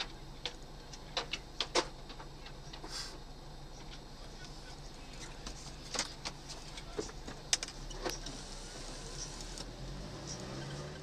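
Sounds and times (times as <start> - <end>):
sharp clicks and knocks: 0.0 - 2.9
car engine hum: 0.0 - 11.0.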